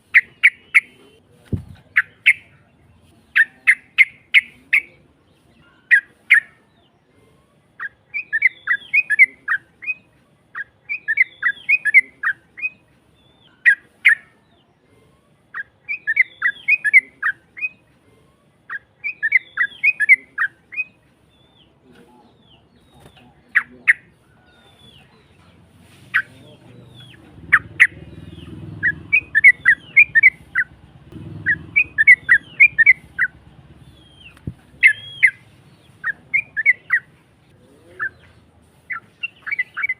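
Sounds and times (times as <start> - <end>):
harsh bird song chattering: 0.0 - 17.9, 18.5 - 39.9
faint low rumble: 26.8 - 36.0.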